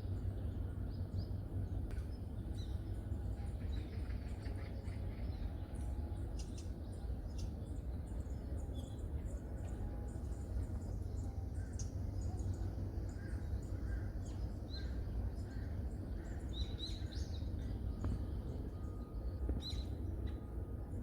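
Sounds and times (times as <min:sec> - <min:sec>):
birds chirping: 0:00.0 - 0:21.0
steady low rumble: 0:00.0 - 0:21.0.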